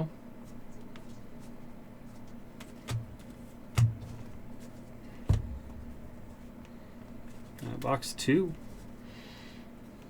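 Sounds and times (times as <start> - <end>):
low room hum: 0.0 - 10.0
dull knocks of boxes set down: 5.2 - 6.1.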